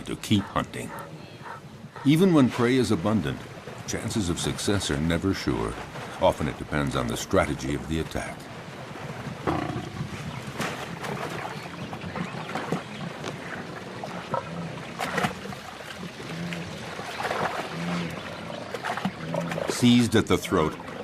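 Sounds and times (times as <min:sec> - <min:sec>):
water splashing and churning: 0:00.0 - 0:21.0.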